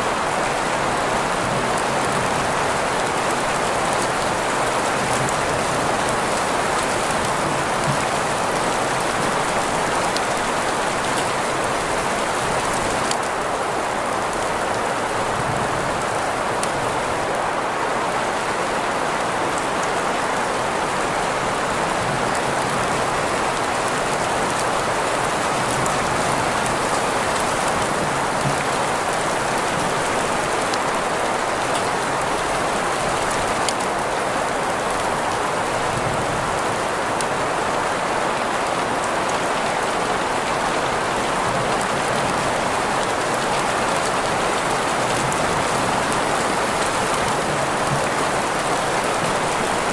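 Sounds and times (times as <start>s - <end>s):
steady rain hiss: 0.0s - 49.9s.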